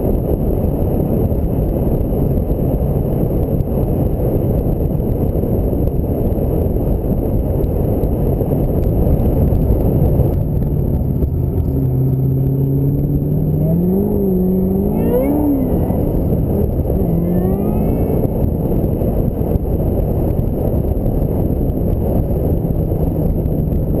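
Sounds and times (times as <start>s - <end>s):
road and wind noise: 0.0s - 24.0s
car engine accelerating: 8.8s - 24.0s.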